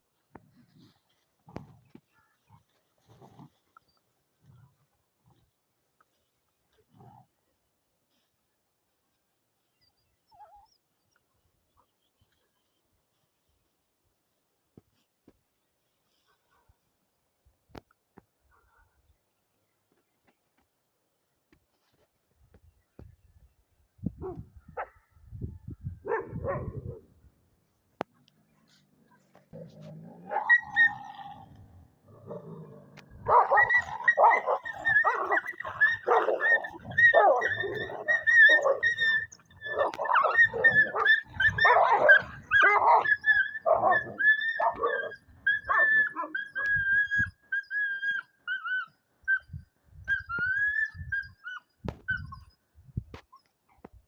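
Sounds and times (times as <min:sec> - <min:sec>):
dog barking: 0:24.2 - 0:25.1, 0:26.0 - 0:27.1, 0:30.2 - 0:31.0, 0:33.2 - 0:46.7.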